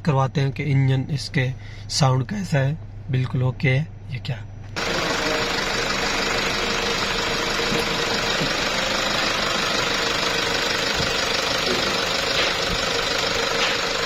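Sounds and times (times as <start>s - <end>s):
diesel engine idling: 4.8s - 14.0s.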